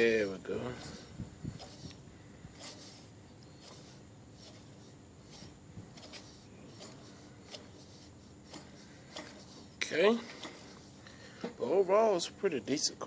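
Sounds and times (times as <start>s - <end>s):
low steady hum: 0.0s - 13.0s
rubbing: 0.7s - 11.0s.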